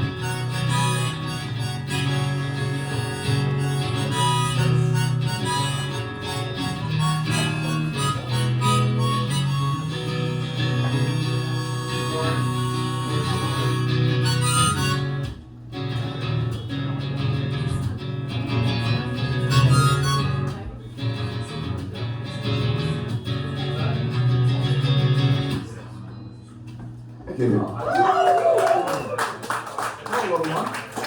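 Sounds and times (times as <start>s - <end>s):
harmonica playing melody: 0.0s - 15.4s, 19.0s - 20.6s
strummed acoustic guitar: 0.0s - 25.8s.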